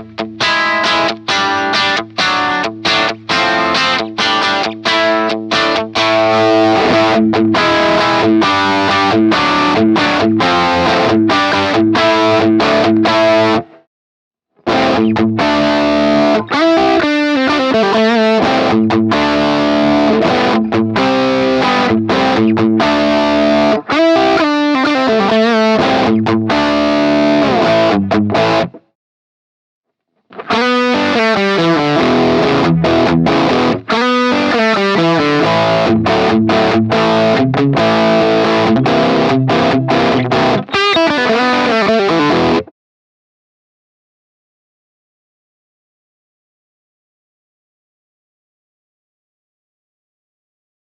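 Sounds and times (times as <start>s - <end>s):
distorted electric guitar riffs: 0.0s - 13.9s, 14.6s - 28.9s, 30.2s - 42.7s.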